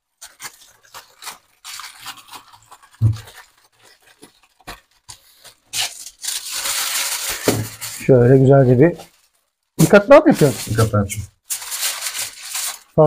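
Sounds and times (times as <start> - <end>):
aluminium foil crinkling: 0.0 - 13.0.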